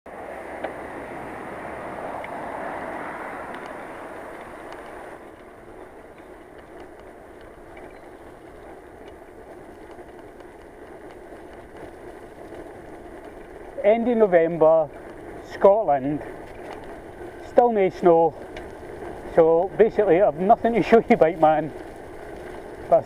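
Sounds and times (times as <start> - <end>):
rushing air: 0.1 - 5.3
bicycle tyres on tarmac: 0.1 - 23.0
faint clicks: 3.5 - 13.8.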